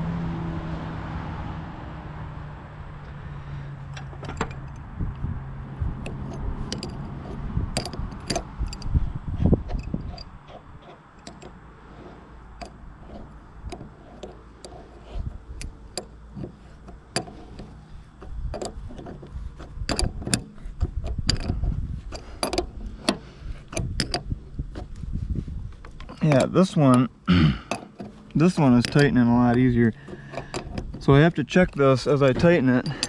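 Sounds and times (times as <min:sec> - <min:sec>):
wrench clicking on metal: 0:06.0 - 0:09.0, 0:19.9 - 0:24.3.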